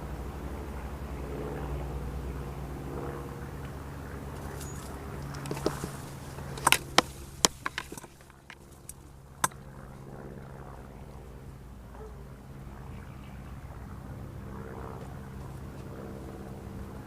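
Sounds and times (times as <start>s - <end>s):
steady low hum: 0.0s - 17.0s
sharp clicks and knocks: 4.4s - 9.6s.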